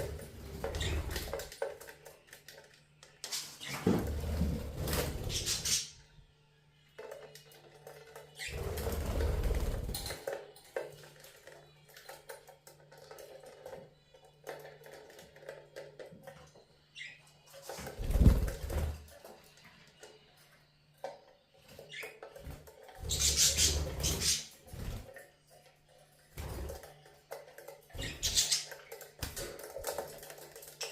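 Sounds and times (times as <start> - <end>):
wings fluttering and splashing water: 3.3 - 5.8, 7.8 - 13.8, 17.0 - 19.2, 21.6 - 25.3, 26.1 - 30.9.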